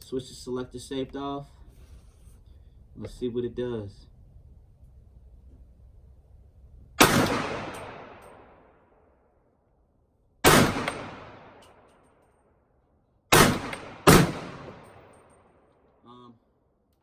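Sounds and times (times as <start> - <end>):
rifle shots: 7.0 - 8.7, 10.4 - 11.9, 13.3 - 15.4.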